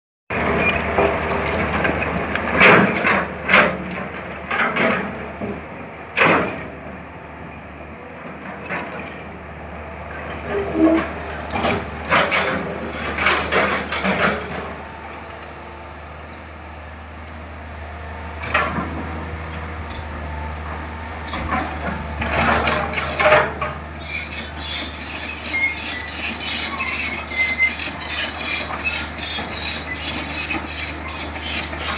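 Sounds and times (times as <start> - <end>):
diesel engine running: 9.4 - 31.9
metallic clanks and scrapes: 10.3 - 14.7, 21.3 - 31.9.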